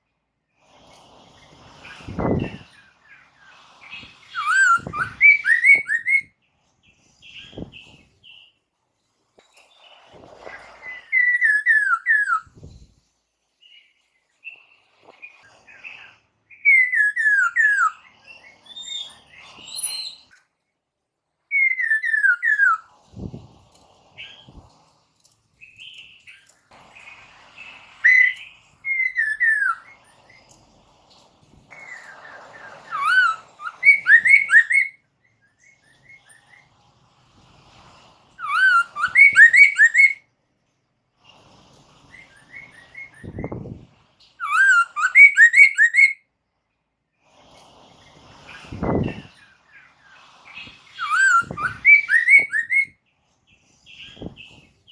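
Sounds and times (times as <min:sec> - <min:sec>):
bird singing slurred whistles: 0:03.9 - 0:06.3, 0:10.8 - 0:12.6, 0:16.5 - 0:18.0, 0:21.5 - 0:23.3, 0:28.0 - 0:30.0, 0:31.8 - 0:35.0, 0:38.4 - 0:40.2, 0:44.4 - 0:46.2, 0:50.9 - 0:53.0
thin high chirps: 0:03.9 - 0:06.3, 0:10.6 - 0:12.6, 0:16.5 - 0:20.4, 0:21.6 - 0:22.8, 0:28.0 - 0:30.5, 0:31.7 - 0:35.0, 0:38.4 - 0:40.2, 0:44.4 - 0:46.2, 0:50.7 - 0:53.0.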